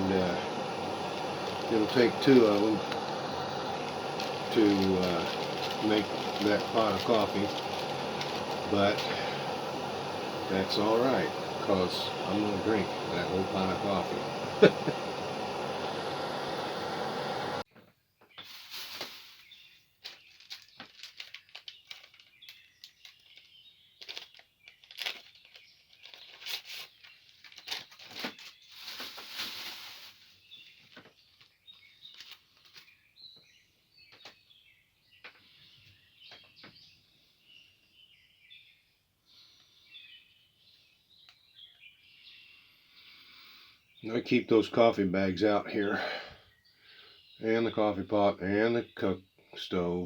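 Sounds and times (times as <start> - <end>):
steady rushing noise: 0.0 - 17.6
birds chirping: 0.0 - 50.0.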